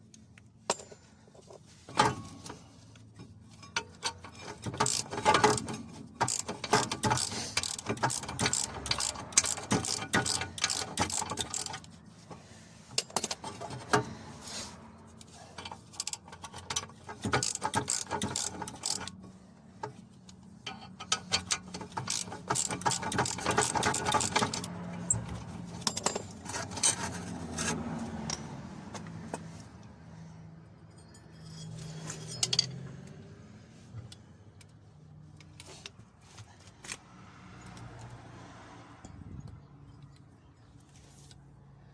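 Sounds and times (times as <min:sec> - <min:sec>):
ratchet wrench clicking: 0:04.0 - 0:11.9, 0:15.7 - 0:19.2, 0:20.7 - 0:27.1.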